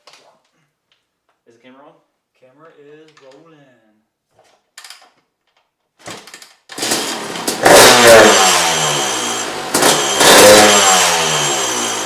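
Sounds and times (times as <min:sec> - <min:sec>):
dirt bike kick-start: 0:06.1 - 0:08.4
dirt bike engine revving: 0:06.7 - 0:12.0.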